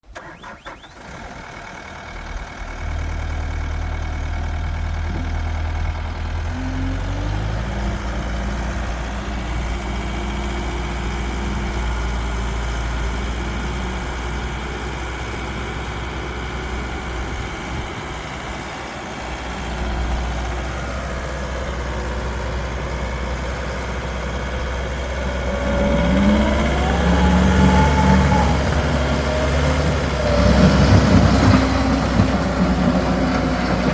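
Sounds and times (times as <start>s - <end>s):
diesel engine running: 0.0s - 33.9s
hydraulic whines: 24.6s - 32.0s.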